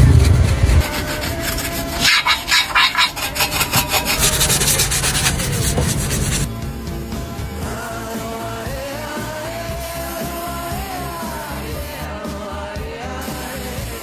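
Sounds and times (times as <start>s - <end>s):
hand-sanding plastic: 0.0s - 6.5s.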